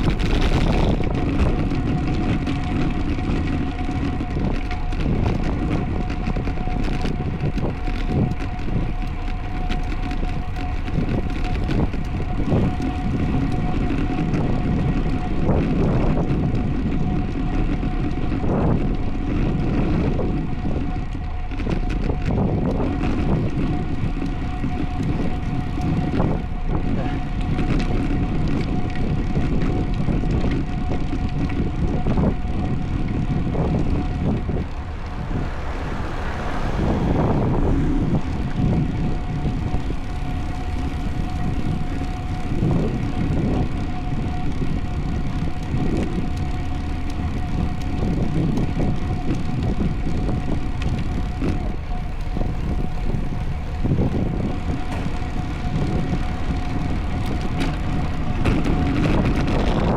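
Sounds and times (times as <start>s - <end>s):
road and drivetrain rumble: 0.0s - 59.9s
wind buffeting microphone: 0.0s - 59.9s
thin constant tone: 32.0s - 59.9s.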